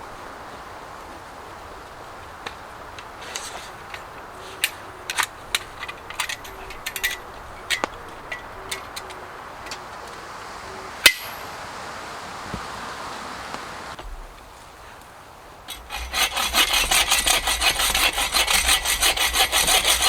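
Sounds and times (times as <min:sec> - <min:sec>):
wood and tools clicking and knocking: 0:02.4 - 0:10.2, 0:15.7 - 0:20.0.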